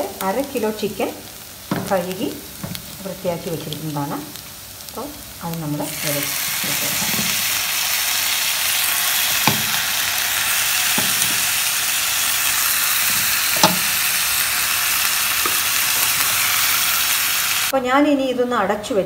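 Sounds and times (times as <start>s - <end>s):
chicken frying in hot oil: 0.0s - 17.7s
sharp knocks: 9.4s - 9.8s, 13.1s - 14.0s.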